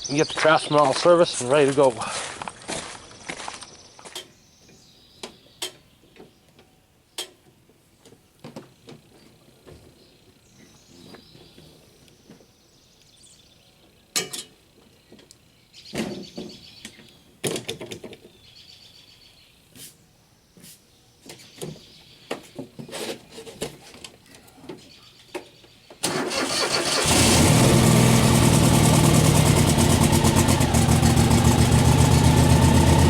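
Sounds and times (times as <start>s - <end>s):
small birds chirping: 3.0s - 8.2s, 8.8s - 14.2s, 18.2s - 22.9s, 24.4s - 26.0s.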